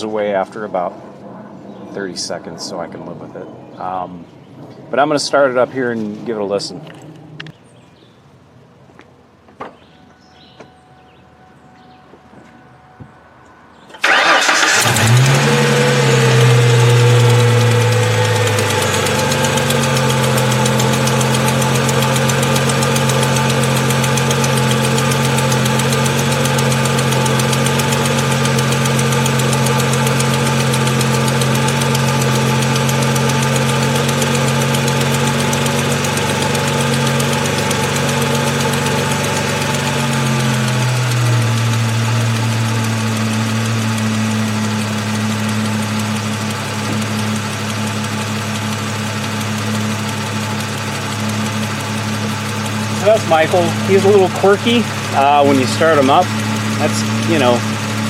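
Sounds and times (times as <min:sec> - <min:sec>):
car engine starting and idling: 0:09.3 - 0:58.0
engine ticking: 0:13.9 - 0:58.0.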